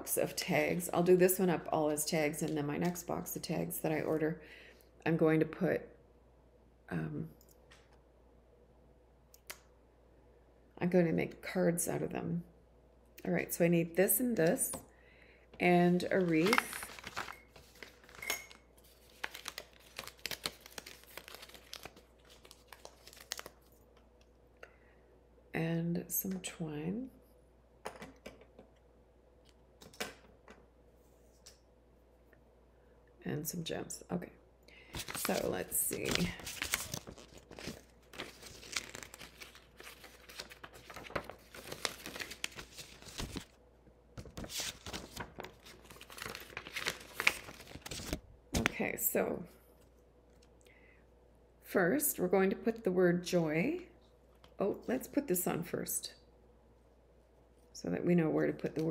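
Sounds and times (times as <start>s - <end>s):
paper and plastic crinkling: 16.0s - 23.9s, 34.9s - 43.6s, 44.2s - 48.8s.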